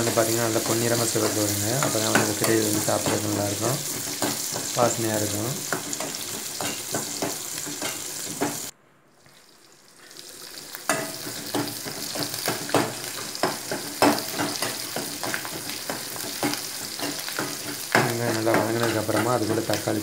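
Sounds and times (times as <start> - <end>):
steel ladle scraping a pan: 0.0 - 8.7
food sizzling in hot oil: 0.0 - 20.0.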